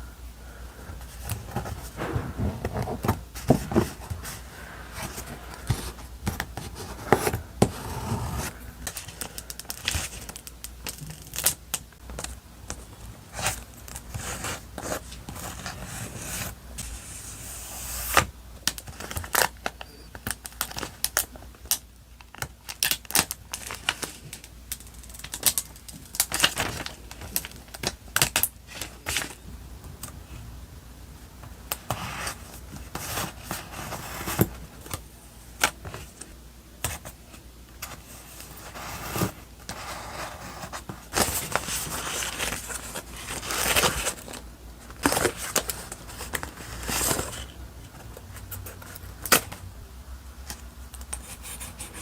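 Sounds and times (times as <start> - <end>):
paper rustling and crinkling: 1.1 - 11.5, 37.8 - 49.5.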